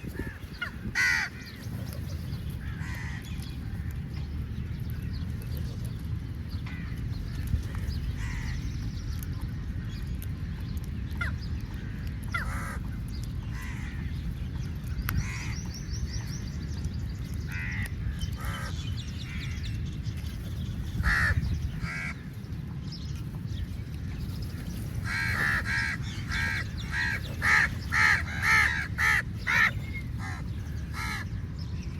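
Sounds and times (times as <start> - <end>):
low background rumble: 0.0 - 31.9
crows cawing: 0.1 - 1.6, 2.6 - 3.2, 12.3 - 12.8, 17.5 - 19.6, 21.0 - 22.2, 25.0 - 31.3.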